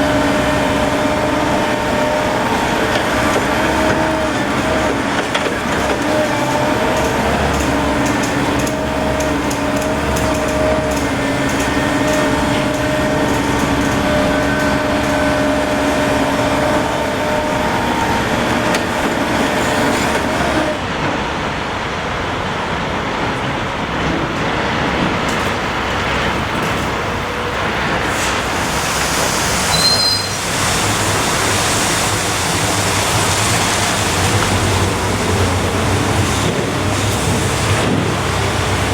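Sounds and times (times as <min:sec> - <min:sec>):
engine drone: 0:00.0 - 0:21.0, 0:23.9 - 0:38.9
short high squeal: 0:29.6 - 0:30.6.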